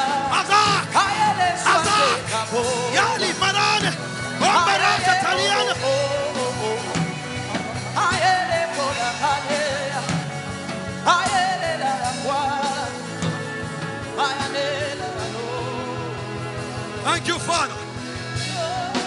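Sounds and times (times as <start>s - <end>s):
person singing with vibrato: 0.0s - 13.3s.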